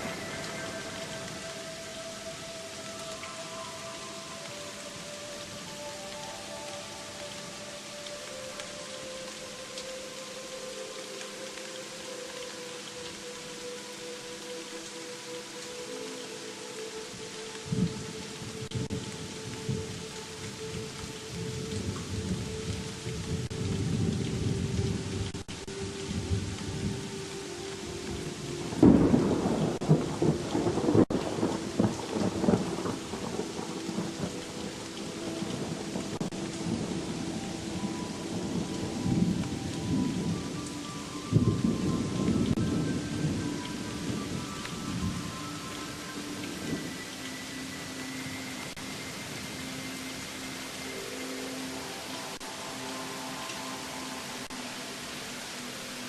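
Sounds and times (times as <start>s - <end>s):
thunder rumbling: 0.0s - 3.1s, 28.0s - 40.6s
steady rain: 0.0s - 56.0s.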